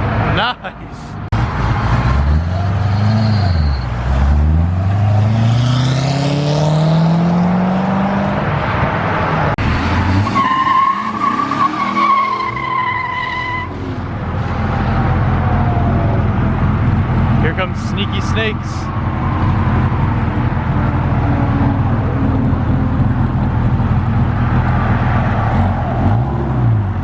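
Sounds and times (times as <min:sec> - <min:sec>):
car engine accelerating: 0:01.3 - 0:11.6
tires squealing: 0:01.4 - 0:06.1, 0:09.6 - 0:16.1, 0:17.4 - 0:27.0.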